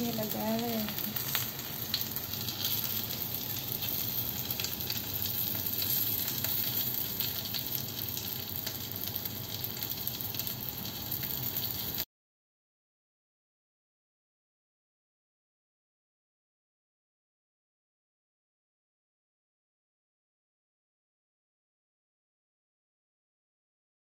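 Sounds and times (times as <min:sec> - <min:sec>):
meat sizzling on a grill pan: 0:00.0 - 0:12.1.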